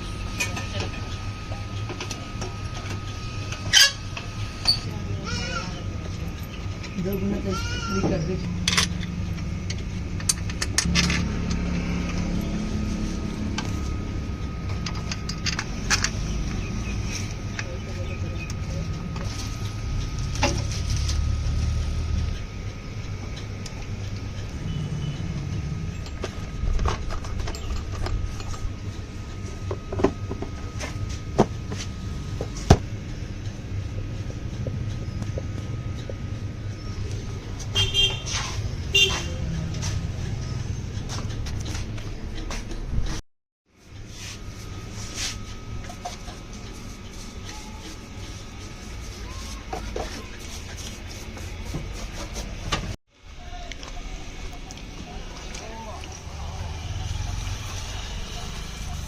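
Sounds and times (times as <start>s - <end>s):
sharp clicks and knocks: 8.6s - 11.7s
scooter engine running: 54.4s - 59.0s.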